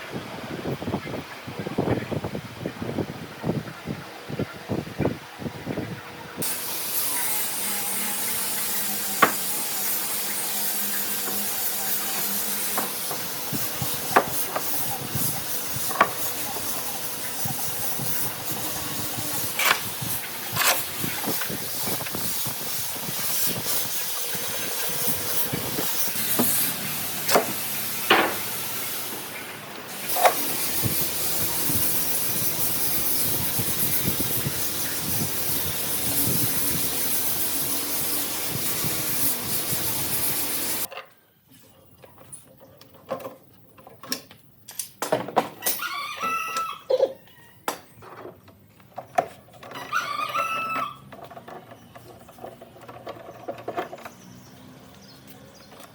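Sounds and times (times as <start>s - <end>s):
steady loud hissing: 6.3s - 40.9s.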